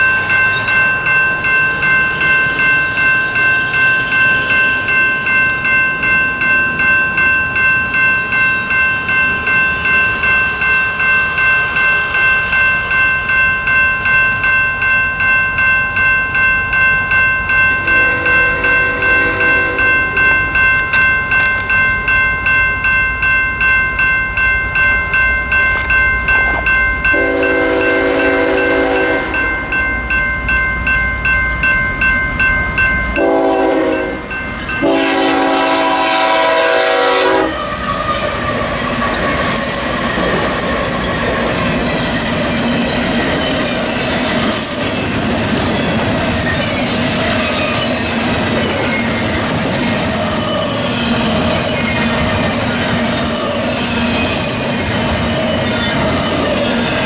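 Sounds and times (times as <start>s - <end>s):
crossing bell ringing: 0.0s - 57.0s
train rumble: 0.0s - 57.0s
locomotive horn blasts: 17.8s - 20.3s, 27.1s - 29.5s, 33.2s - 37.7s.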